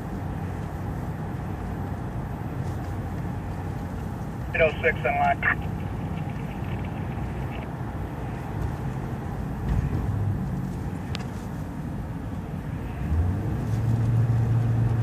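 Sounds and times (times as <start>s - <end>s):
engine and road rumble: 0.0s - 15.0s.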